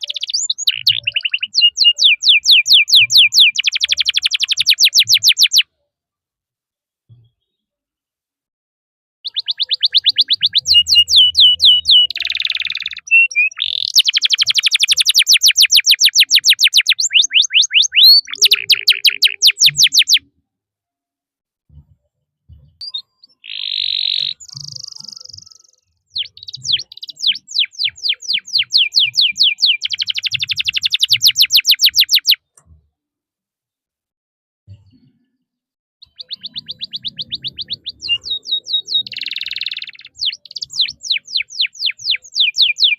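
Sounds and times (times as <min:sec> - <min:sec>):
canary singing: 0:00.0 - 0:05.7, 0:09.2 - 0:20.3, 0:22.8 - 0:32.4, 0:36.0 - 0:42.9.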